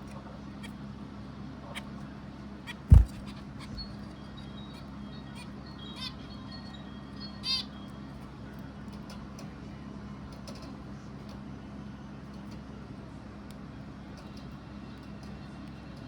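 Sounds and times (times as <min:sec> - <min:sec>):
steady low hum: 0:02.7 - 0:04.0
bird chirping: 0:02.7 - 0:06.2.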